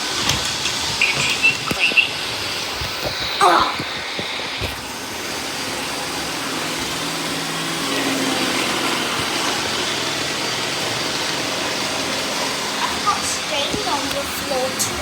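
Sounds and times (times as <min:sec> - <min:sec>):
robot vacuum cleaners whirring: 0:00.0 - 0:15.0.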